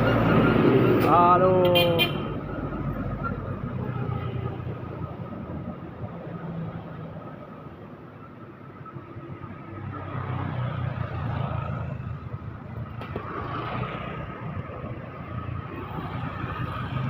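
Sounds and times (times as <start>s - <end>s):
vehicles passing by: 0.0s - 17.0s.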